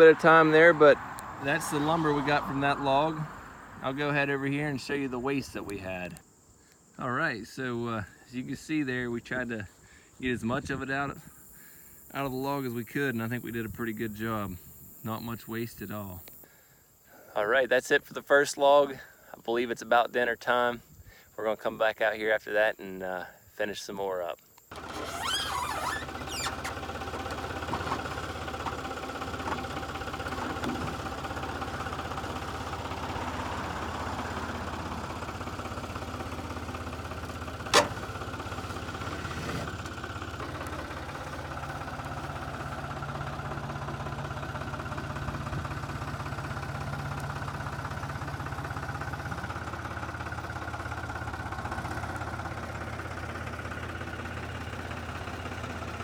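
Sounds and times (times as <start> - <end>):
engine idling: 24.7 - 56.0.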